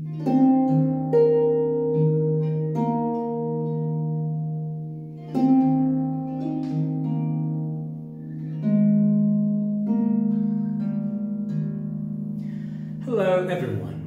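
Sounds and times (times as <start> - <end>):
harp playing slow chords: 0.0 - 14.0.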